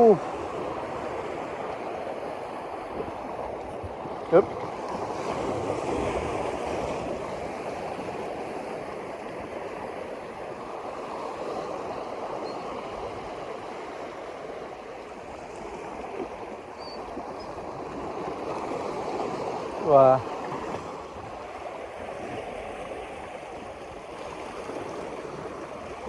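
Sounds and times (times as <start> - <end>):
flowing water rushing: 0.0 - 26.0.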